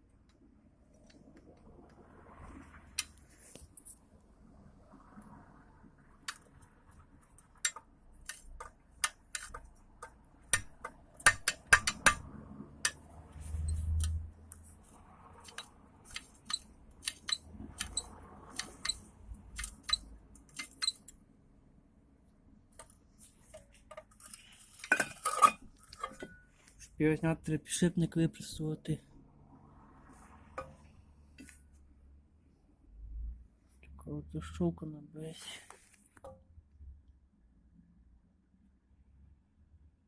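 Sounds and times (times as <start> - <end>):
metal tools clinking: 24.2 - 26.5.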